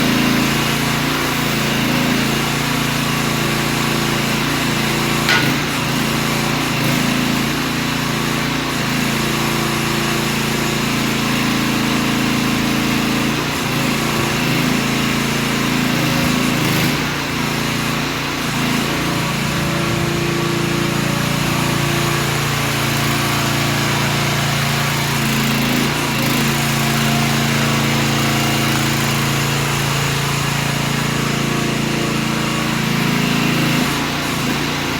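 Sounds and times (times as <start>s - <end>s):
sharp click: 5.3s - 5.9s
small engine running: 6.6s - 34.9s.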